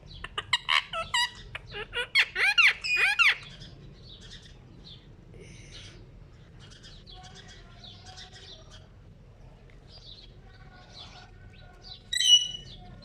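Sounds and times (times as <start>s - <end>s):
parrot chattering: 0.1s - 3.5s
shrill parrot call: 12.1s - 12.8s.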